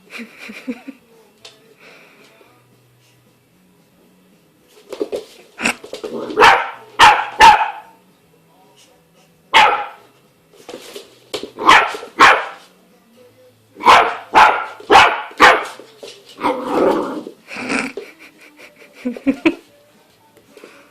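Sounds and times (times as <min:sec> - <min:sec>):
puppy barking: 0:06.3 - 0:08.0, 0:09.5 - 0:10.1, 0:11.6 - 0:12.6, 0:13.8 - 0:15.8.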